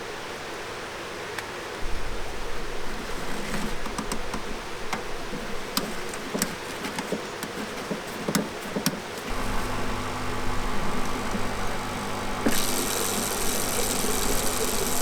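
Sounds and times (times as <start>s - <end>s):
light clicks and knocks: 3.5s - 15.0s
engine idling: 9.3s - 15.0s.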